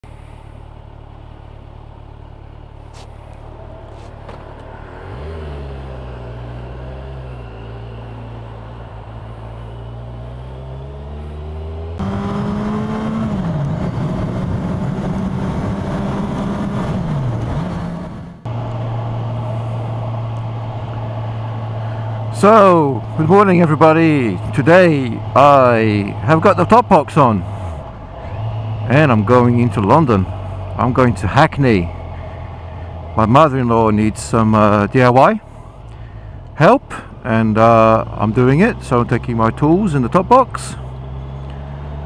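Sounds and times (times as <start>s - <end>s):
motorcycle engine running: 12.0s - 26.8s.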